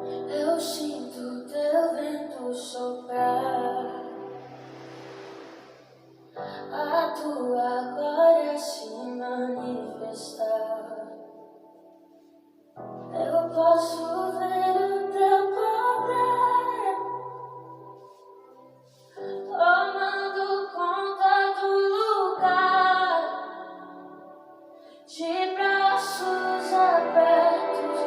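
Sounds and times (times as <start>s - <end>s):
soft musical accompaniment: 0.0s - 28.0s
woman singing gospel song: 0.3s - 4.2s, 25.1s - 28.0s.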